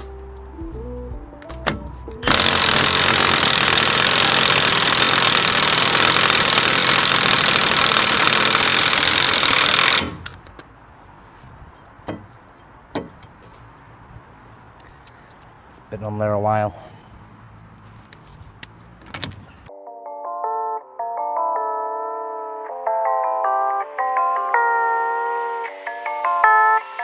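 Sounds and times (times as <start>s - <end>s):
impact wrench hammering: 1.6s - 10.6s, 12.0s - 13.4s.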